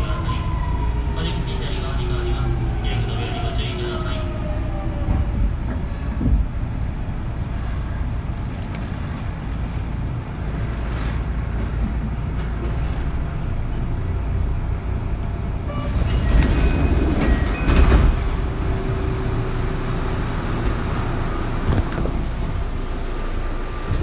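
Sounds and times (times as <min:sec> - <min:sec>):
train wheels and motors rumbling: 0:00.0 - 0:24.0.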